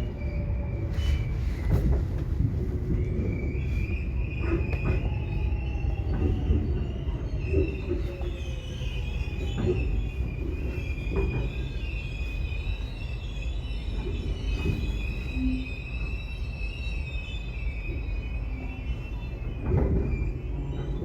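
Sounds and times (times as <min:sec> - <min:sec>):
subway train rumbling: 0:00.0 - 0:21.0.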